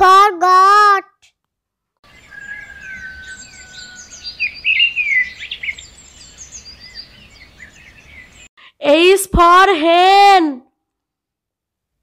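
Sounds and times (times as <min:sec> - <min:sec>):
small birds chirping and singing: 0:02.0 - 0:08.5
long falling bird whistle: 0:02.1 - 0:08.0.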